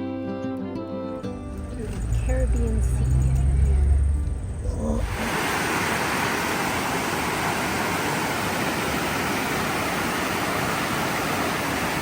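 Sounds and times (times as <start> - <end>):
waterfall rushing: 4.9 - 12.0.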